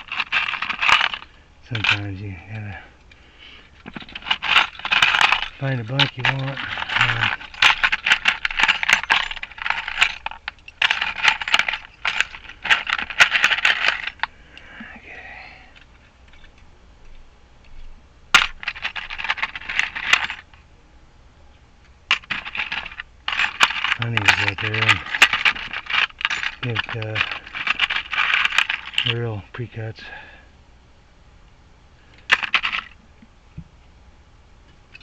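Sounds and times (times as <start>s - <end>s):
metal keys clinking and rattling: 0.0s - 2.3s, 3.8s - 14.3s, 15.7s - 20.5s, 22.1s - 29.2s, 32.3s - 33.0s.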